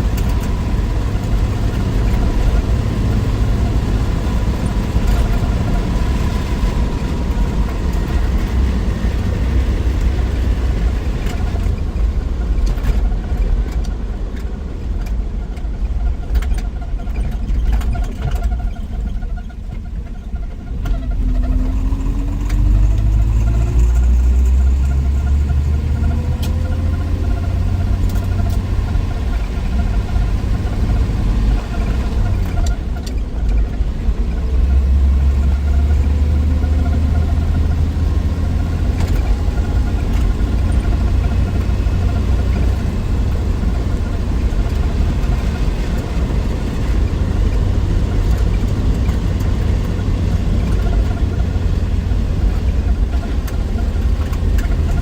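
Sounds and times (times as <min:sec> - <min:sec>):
car engine running: 0:00.0 - 0:55.0
road noise: 0:00.0 - 0:55.0.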